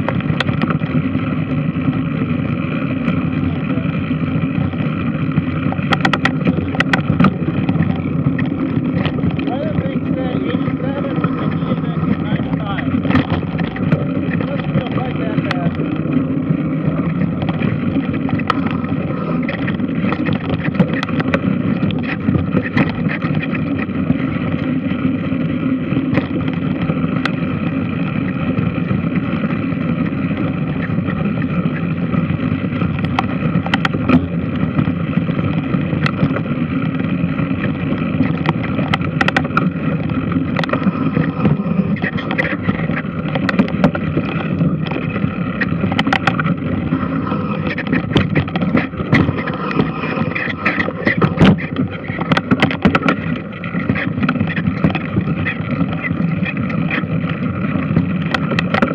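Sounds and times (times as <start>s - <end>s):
washing machine rumbling: 30.5s - 58.9s.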